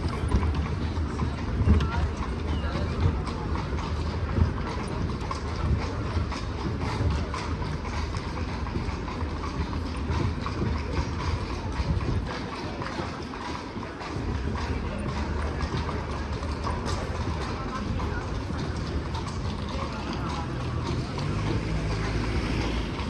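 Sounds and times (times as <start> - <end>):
carriage wheels rumbling: 0.0 - 23.0
horse hooves clip-clopping: 0.0 - 23.0.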